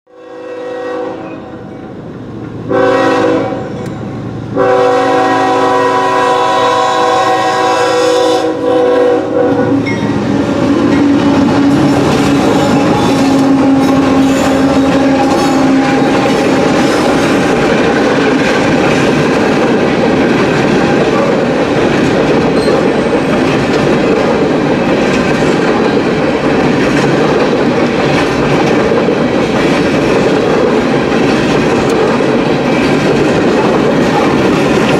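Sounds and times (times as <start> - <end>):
train horn blasts: 0.1 - 1.9, 2.6 - 17.2
train cars rumbling on rails: 0.2 - 34.9.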